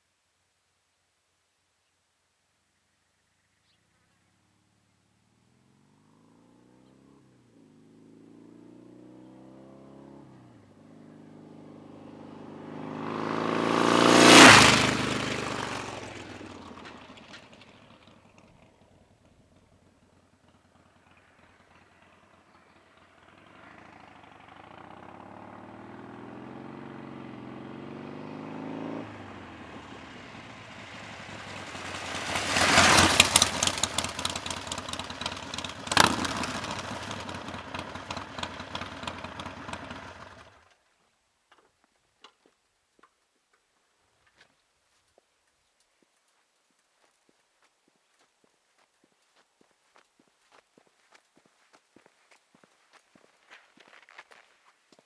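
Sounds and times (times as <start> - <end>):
motorcycle engine passing by: 5.3 - 40.8.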